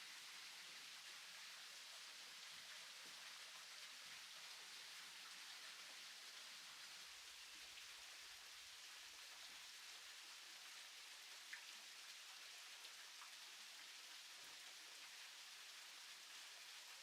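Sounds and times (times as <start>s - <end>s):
light rain hissing: 0.0s - 17.0s
raindrop ticks: 11.5s - 11.7s.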